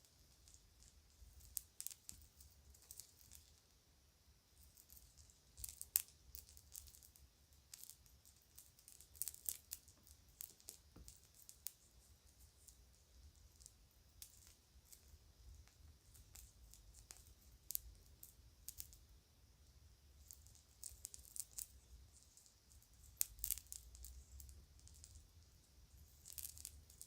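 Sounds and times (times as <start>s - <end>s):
jewelry clicks and bag crinkles: 0.3s - 3.6s, 4.7s - 11.8s, 20.2s - 25.3s, 26.0s - 27.0s.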